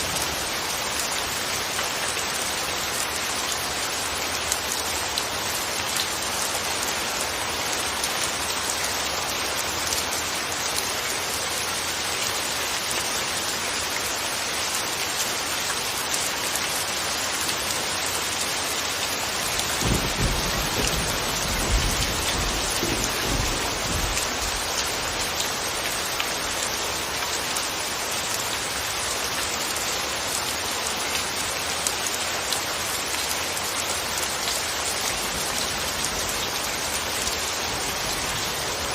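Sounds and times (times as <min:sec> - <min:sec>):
rain falling: 0:00.0 - 0:38.9
thunder rumble: 0:19.7 - 0:25.2.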